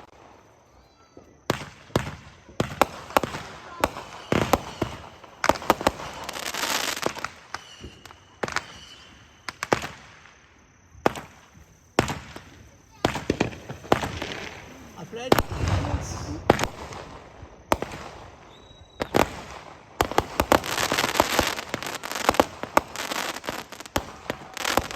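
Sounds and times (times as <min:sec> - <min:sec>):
firework hissing and crackling: 0:00.0 - 0:10.4, 0:11.0 - 0:24.9
firework bangs: 0:11.0 - 0:24.9.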